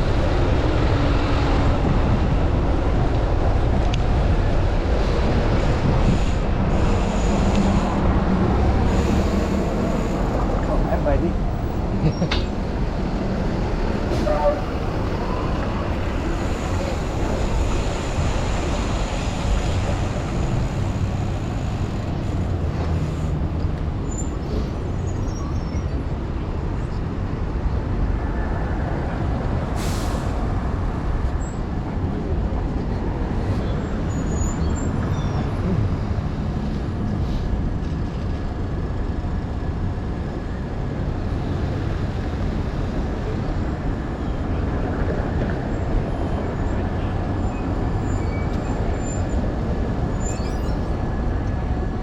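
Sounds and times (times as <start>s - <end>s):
wind buffeting microphone: 0.0s - 24.0s
city traffic: 0.0s - 52.0s.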